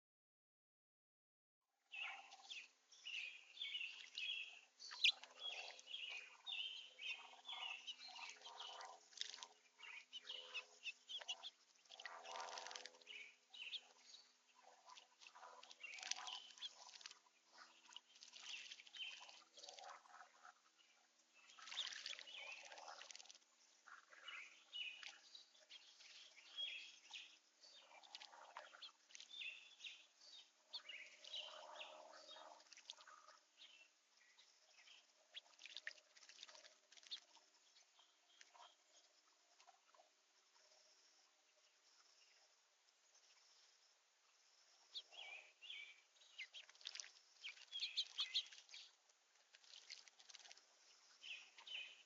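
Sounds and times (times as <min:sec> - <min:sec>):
small birds chirping: 0:01.9 - 0:52.0.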